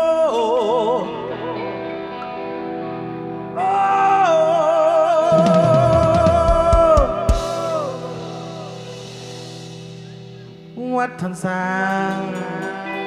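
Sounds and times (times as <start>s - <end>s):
drum fill: 5.3s - 10.8s
cymbal crash: 5.3s - 10.9s.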